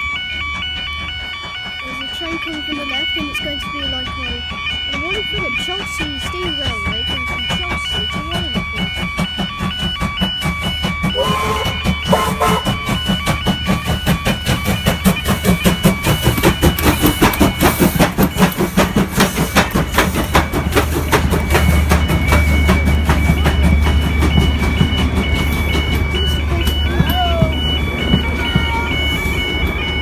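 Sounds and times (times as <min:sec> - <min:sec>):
crossing alarm alternating tones: 0:00.0 - 0:30.0
locomotive engine drone: 0:00.0 - 0:30.0
train wheels clicking on rail joints: 0:00.0 - 0:30.0.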